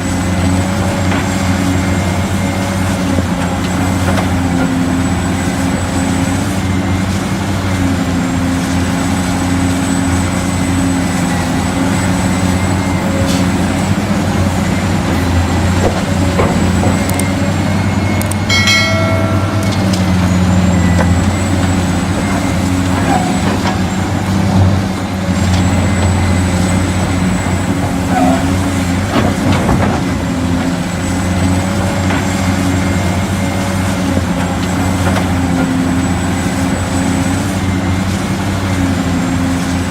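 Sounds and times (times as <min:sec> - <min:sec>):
brief tone: 0:17.0 - 0:22.5.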